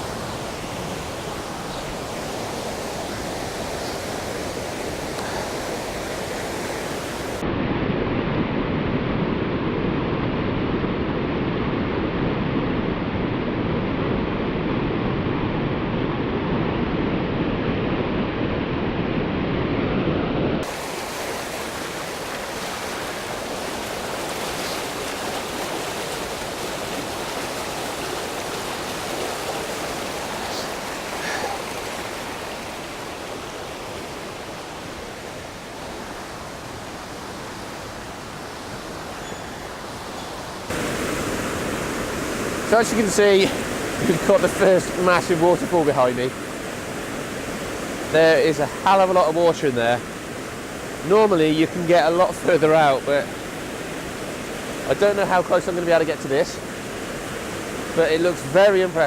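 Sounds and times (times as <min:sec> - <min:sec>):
river and waterfall roaring: 0:00.0 - 0:07.5, 0:20.6 - 0:59.0.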